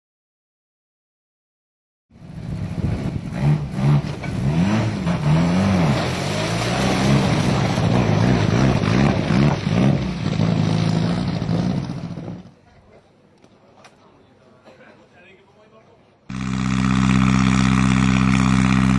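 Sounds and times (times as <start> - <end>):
car engine revving: 2.5 - 12.5, 16.3 - 18.9.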